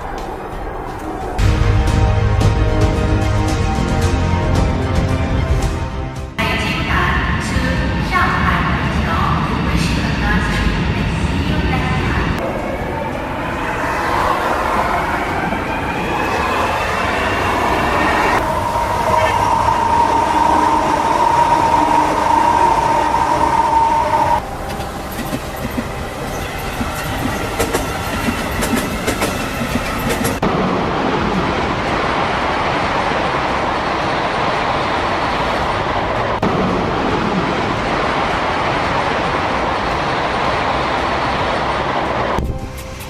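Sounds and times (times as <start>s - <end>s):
train rushing noise: 0.0s - 43.0s
steady whine: 12.4s - 26.3s
train wheels clicking on track: 18.4s - 30.6s.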